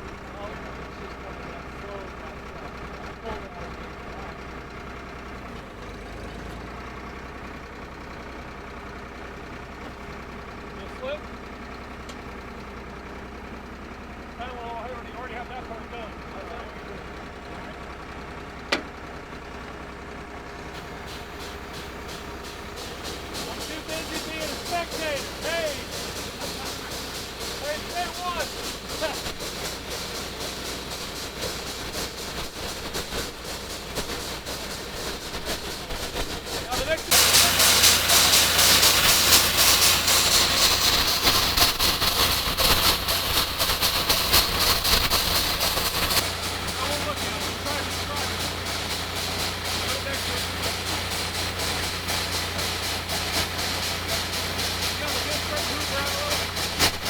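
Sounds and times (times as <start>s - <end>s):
drill rig engine running: 0.0s - 57.0s
faint regular ticking: 20.8s - 57.0s.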